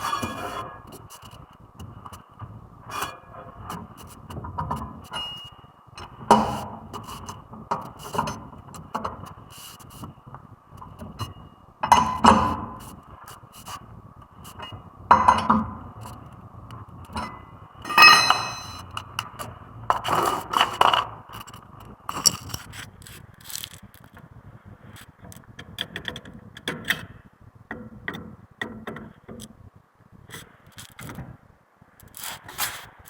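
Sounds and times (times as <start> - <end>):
metal tools clinking and scraping: 17.9 - 18.9.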